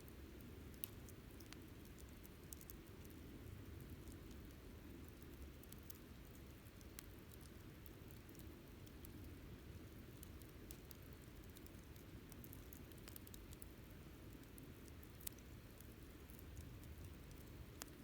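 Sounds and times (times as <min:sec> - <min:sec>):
low steady fire rumble: 0:00.0 - 0:18.0
campfire crackling: 0:06.6 - 0:18.0.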